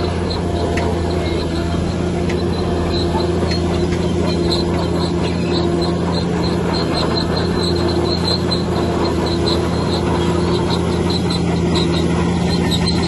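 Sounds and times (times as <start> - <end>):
bulldozer diesel engine running: 0.0 - 13.0
high squeak: 0.0 - 13.0.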